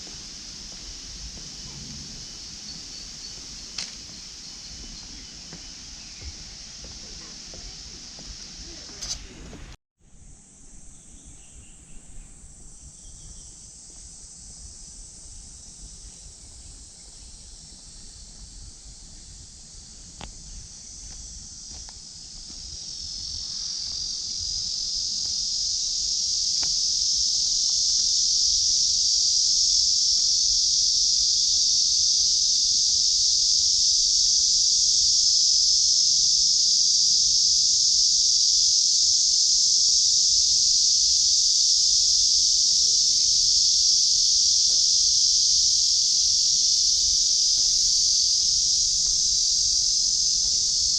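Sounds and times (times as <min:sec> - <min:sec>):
cicadas buzzing: 0:00.0 - 0:50.9.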